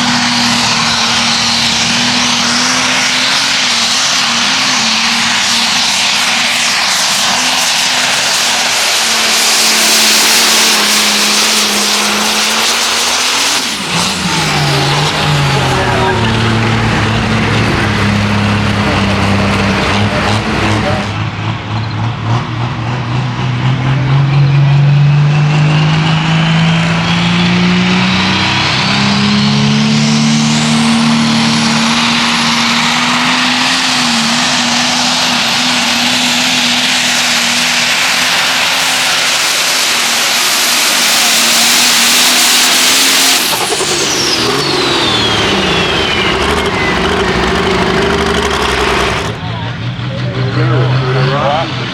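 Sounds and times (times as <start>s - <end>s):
high turbo whine: 0.0s - 23.2s, 23.8s - 51.9s
tractor diesel engine revving: 0.0s - 51.9s.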